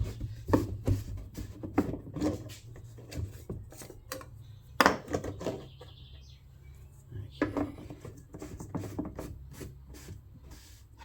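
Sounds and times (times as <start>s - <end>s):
objects being handled: 0.0s - 6.0s, 7.3s - 11.0s.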